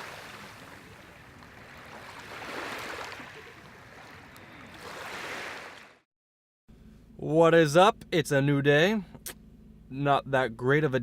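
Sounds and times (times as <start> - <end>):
ocean surf washing onto beach: 0.0 - 4.2.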